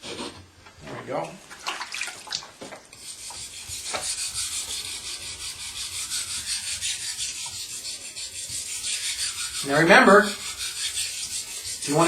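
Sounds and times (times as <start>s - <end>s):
knife grinding on water stone: 3.0s - 12.0s.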